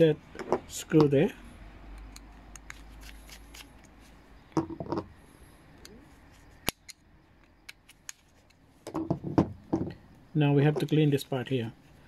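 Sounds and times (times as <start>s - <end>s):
screwdriver clicking and scraping: 2.0s - 4.0s.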